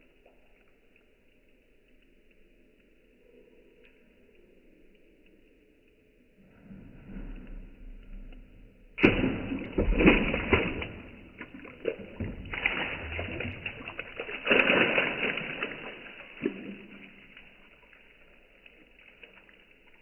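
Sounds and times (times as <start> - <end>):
tile shards splashing into water: 9.0 - 20.0.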